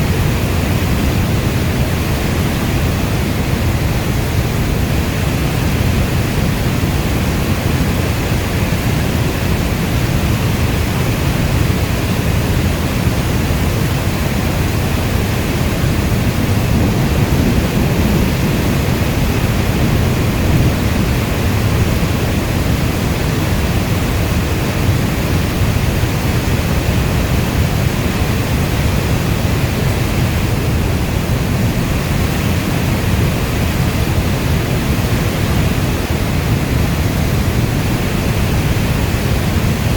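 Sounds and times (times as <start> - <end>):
rainfall hiss: 0.0 - 39.9
heavy low rumble: 13.6 - 36.5.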